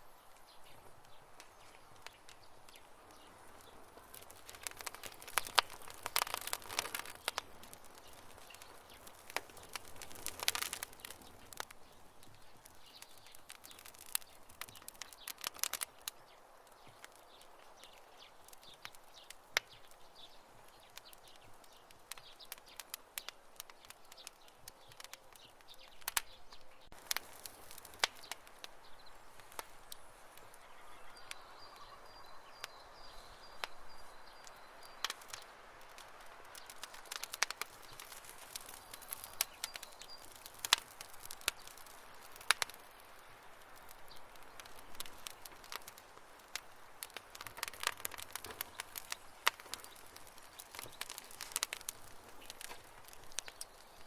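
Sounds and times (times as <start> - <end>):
wood fire crackling and popping: 0.0 - 54.0
faint high chirping: 29.0 - 35.4.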